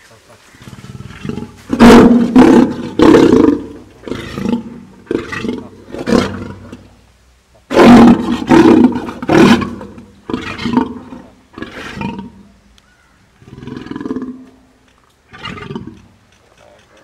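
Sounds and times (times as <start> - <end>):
lion roaring: 0.5 - 6.9, 7.7 - 12.6, 13.4 - 14.6, 15.3 - 16.1
lion grunting calls: 0.5 - 7.0, 7.7 - 14.6, 15.3 - 17.0.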